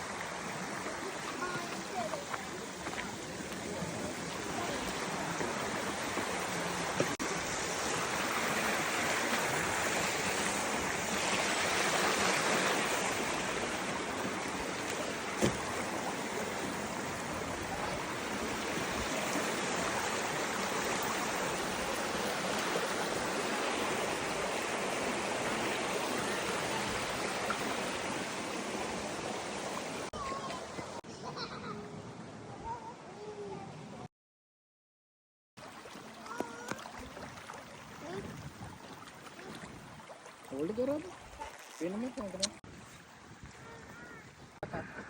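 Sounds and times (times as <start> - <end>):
flowing water rushing: 0.0 - 31.0, 35.6 - 44.6.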